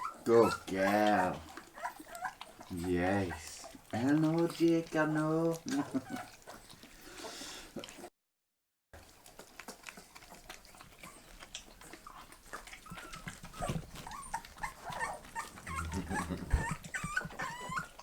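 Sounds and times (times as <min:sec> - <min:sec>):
puppies whimpering and squeaking: 0:00.0 - 0:08.1, 0:09.6 - 0:18.0.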